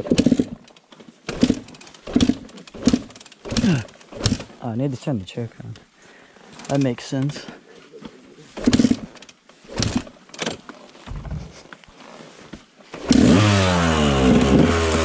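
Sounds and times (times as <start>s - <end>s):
dirt bike engine idling: 0.0s - 4.6s, 8.5s - 10.3s, 12.5s - 15.0s.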